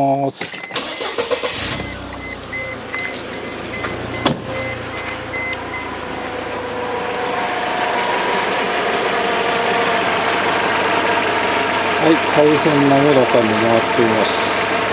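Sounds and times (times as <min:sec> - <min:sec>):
high electronic beep: 0:00.0 - 0:06.4
car engine idling: 0:00.8 - 0:14.9.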